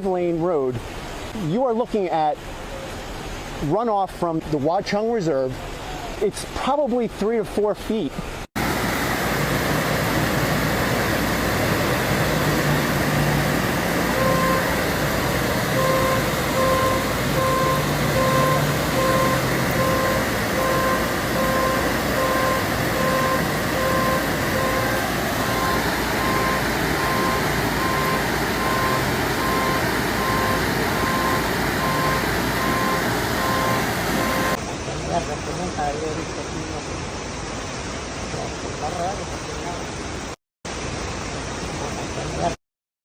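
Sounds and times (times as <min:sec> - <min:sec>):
loud rushing noise: 0:08.6 - 0:34.8
vehicle backup alarm beeping: 0:12.4 - 0:34.6.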